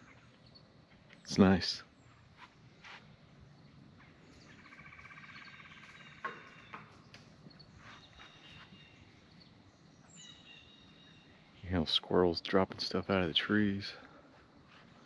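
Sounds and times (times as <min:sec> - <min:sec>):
faint birds chirping: 0:00.0 - 0:15.0
rapid bird trill: 0:04.0 - 0:11.8.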